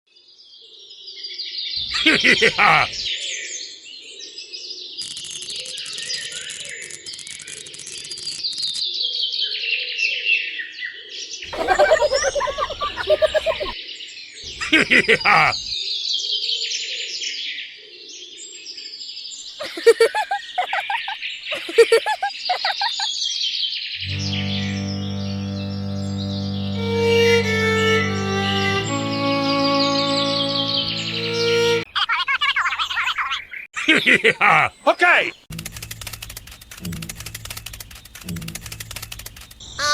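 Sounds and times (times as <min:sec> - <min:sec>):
small birds chirping and twittering: 0:11.5 - 0:13.8, 0:14.5 - 0:15.8, 0:34.7 - 0:39.9
music: 0:24.0 - 0:31.9, 0:36.8 - 0:37.6
louder lower bird calls: 0:37.4 - 0:39.9.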